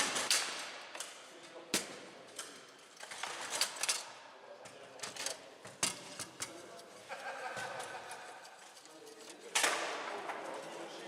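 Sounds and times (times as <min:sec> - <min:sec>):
foosball striking players and walls: 0:00.0 - 0:02.1, 0:09.5 - 0:10.5.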